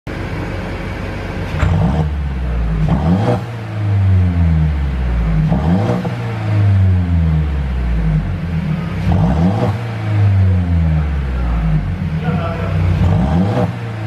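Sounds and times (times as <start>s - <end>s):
car engine revving: 1.4s - 14.0s
exhaust pops: 1.5s - 3.6s.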